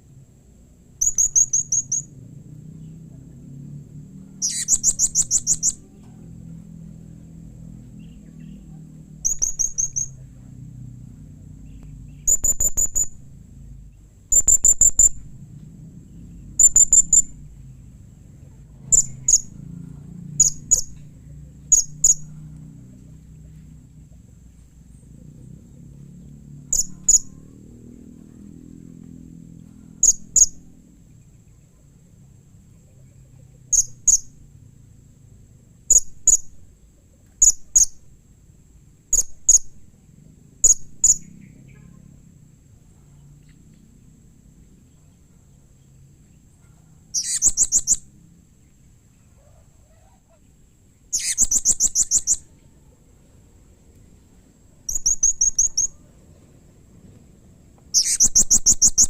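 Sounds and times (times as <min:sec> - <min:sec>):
parrot chirping: 0:01.0 - 0:02.1, 0:04.3 - 0:05.9, 0:09.2 - 0:10.2, 0:12.1 - 0:13.2, 0:14.3 - 0:15.2, 0:16.6 - 0:17.4, 0:18.9 - 0:19.6, 0:20.4 - 0:21.0, 0:21.7 - 0:22.3, 0:26.7 - 0:27.4, 0:30.0 - 0:30.7, 0:33.7 - 0:34.3, 0:35.9 - 0:36.6, 0:37.4 - 0:38.0, 0:47.1 - 0:48.1, 0:51.1 - 0:52.5, 0:54.9 - 0:56.0, 0:57.9 - 0:59.0
parrot trilling bursts: 0:01.0 - 0:02.1, 0:04.4 - 0:05.8, 0:47.1 - 0:48.1, 0:51.1 - 0:52.4, 0:54.9 - 0:56.0, 0:57.9 - 0:59.0.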